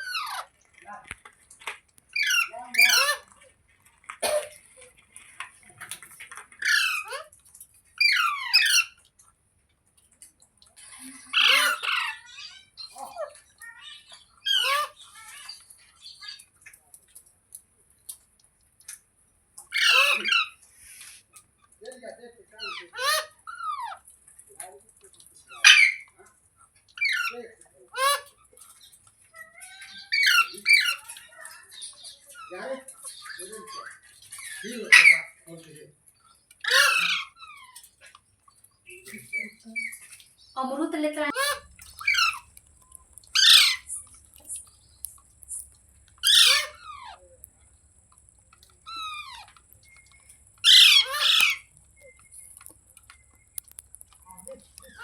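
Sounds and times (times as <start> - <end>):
parrot squawking: 0.0 - 0.6, 2.1 - 3.3, 6.6 - 7.3, 8.0 - 9.0, 10.8 - 16.5, 19.7 - 21.2, 22.5 - 24.1, 25.4 - 26.2, 27.0 - 35.5, 36.6 - 38.1, 38.9 - 47.5, 48.6 - 52.6, 53.6 - 55.0.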